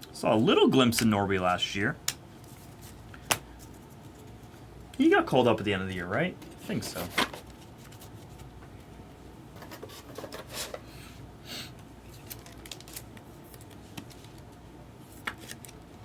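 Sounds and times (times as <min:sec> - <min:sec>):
trading cards sliding and rustling: 0:06.5 - 0:08.5, 0:09.6 - 0:10.9.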